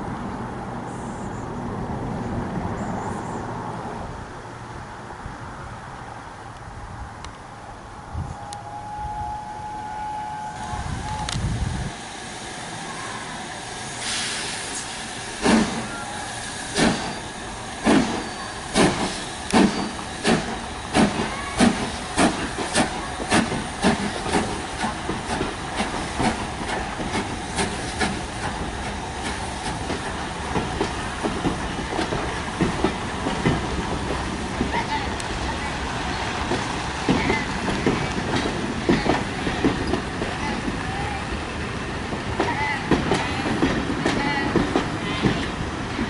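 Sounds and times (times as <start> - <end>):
steam locomotive exhaust chuffs: 8.4 - 40.8
steam hiss: 10.1 - 34.6.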